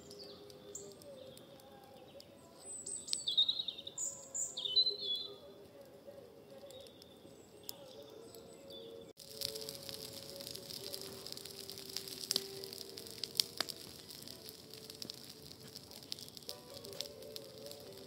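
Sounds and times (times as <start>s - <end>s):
songbird chirping: 0.0s - 18.0s
faint clicks: 9.2s - 18.0s.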